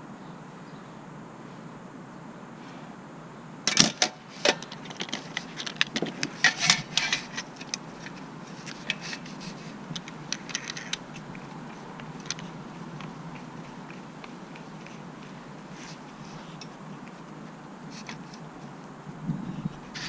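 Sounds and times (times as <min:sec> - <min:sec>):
tools and car parts clinking: 0:03.7 - 0:09.3, 0:09.9 - 0:11.3.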